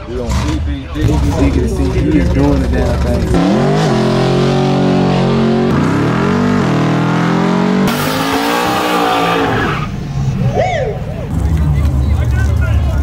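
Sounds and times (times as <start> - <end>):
car engine accelerating through gears: 1.2 - 9.9.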